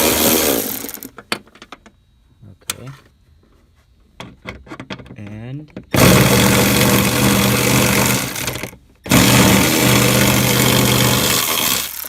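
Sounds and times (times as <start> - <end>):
electric ratchet running: 0.0 - 1.1, 5.9 - 12.0.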